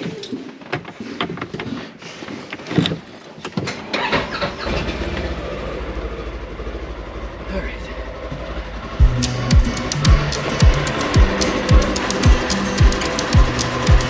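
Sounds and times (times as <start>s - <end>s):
engine starting and idling: 3.9s - 7.5s.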